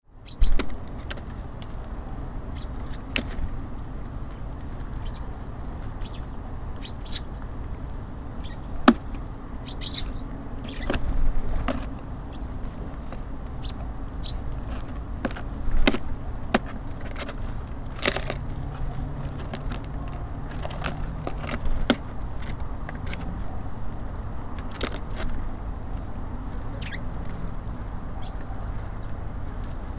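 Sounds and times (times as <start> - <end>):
city traffic rumble: 0.0 - 29.9
birds tapping and pecking: 0.1 - 29.9
vehicle engine hum: 0.1 - 29.9
high bird chirps: 0.2 - 0.6, 2.6 - 3.1, 6.8 - 7.3, 9.6 - 10.9, 26.6 - 27.1, 28.2 - 28.4.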